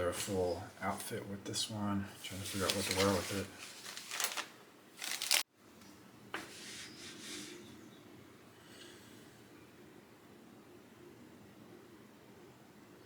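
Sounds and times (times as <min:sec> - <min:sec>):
rustling of handled object: 0:02.2 - 0:05.5.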